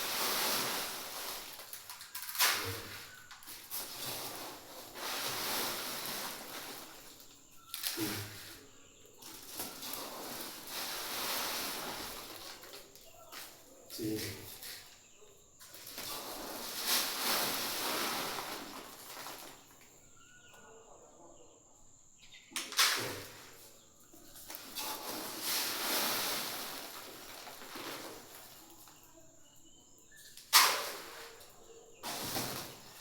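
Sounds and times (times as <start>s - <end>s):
dry feed pouring: 0.0s - 14.9s, 15.7s - 19.9s, 22.7s - 23.8s, 24.4s - 29.1s, 30.4s - 33.0s
faint bird chirps: 5.6s - 10.1s, 19.0s - 25.1s, 27.5s - 33.0s.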